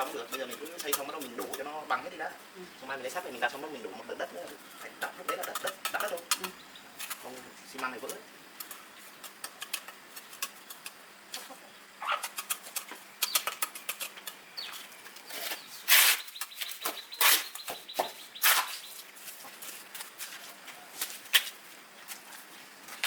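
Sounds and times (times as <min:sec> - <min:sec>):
trowel scraping mortar: 0:00.0 - 0:02.0, 0:04.4 - 0:07.4, 0:08.6 - 0:11.0, 0:12.1 - 0:17.7, 0:18.4 - 0:20.1.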